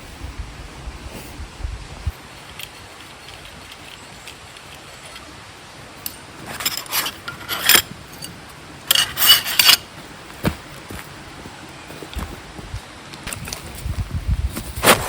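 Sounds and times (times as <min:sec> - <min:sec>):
steady background hiss: 0:00.0 - 0:15.0
objects scraping and rubbing: 0:02.0 - 0:05.4, 0:06.0 - 0:09.9.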